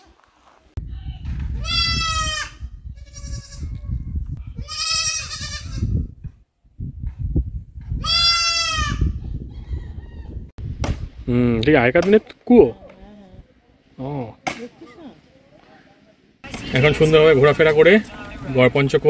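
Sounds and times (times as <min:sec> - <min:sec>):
goat bleating: 0:01.6 - 0:03.8, 0:04.6 - 0:05.9, 0:08.0 - 0:09.2.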